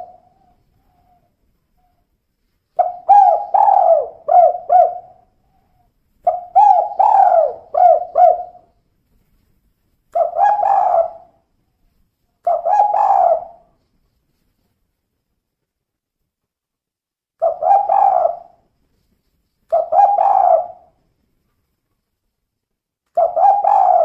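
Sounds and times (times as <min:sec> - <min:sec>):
dove cooing: 0:00.0 - 0:02.0, 0:02.8 - 0:08.8, 0:10.2 - 0:11.4, 0:12.4 - 0:13.7, 0:17.4 - 0:18.6, 0:19.7 - 0:21.0, 0:23.2 - 0:24.0.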